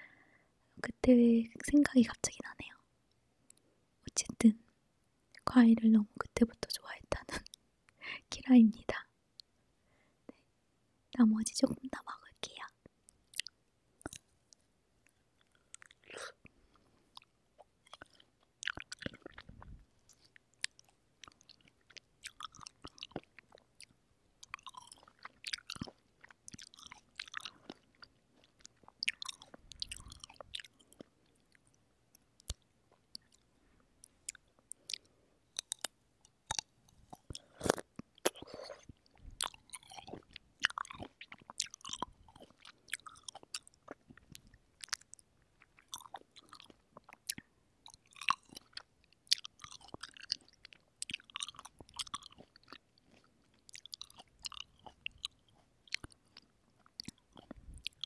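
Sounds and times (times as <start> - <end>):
mouth clicks and smacks: 13.1 - 58.0
wet chewing of cherries: 13.2 - 58.0
biting into cherries: 17.2 - 31.7, 34.0 - 58.0.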